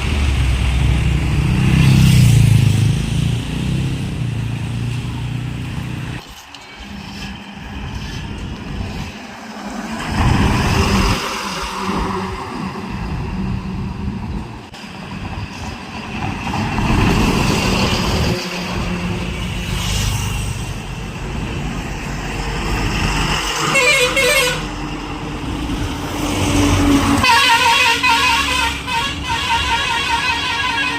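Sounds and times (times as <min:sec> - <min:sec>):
vehicles passing on highway: 0:00.0 - 0:30.9
vehicle horns honking: 0:23.6 - 0:24.7, 0:27.2 - 0:30.9.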